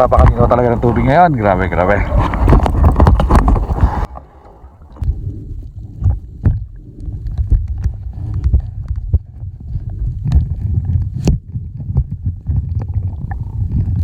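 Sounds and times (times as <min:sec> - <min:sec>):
water splashing: 0:00.0 - 0:06.8
low underwater rumble: 0:00.0 - 0:14.0.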